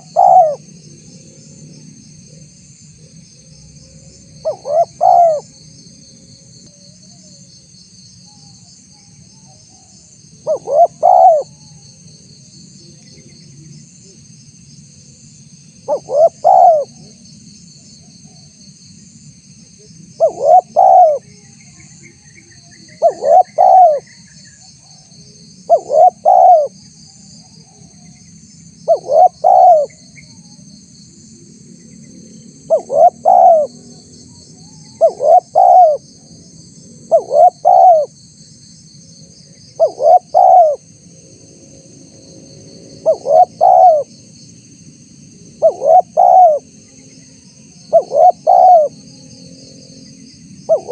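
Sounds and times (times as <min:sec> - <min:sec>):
dove cooing: 0:00.0 - 0:00.7, 0:04.4 - 0:05.5, 0:10.4 - 0:11.8, 0:15.9 - 0:17.1, 0:20.2 - 0:21.3, 0:23.0 - 0:24.1, 0:25.7 - 0:26.7, 0:28.9 - 0:29.9, 0:32.7 - 0:33.9, 0:34.7 - 0:36.0, 0:37.1 - 0:38.1, 0:39.8 - 0:40.8, 0:43.0 - 0:44.1, 0:45.6 - 0:46.7, 0:47.9 - 0:49.0, 0:50.7 - 0:50.9
insects trilling: 0:00.0 - 0:50.9.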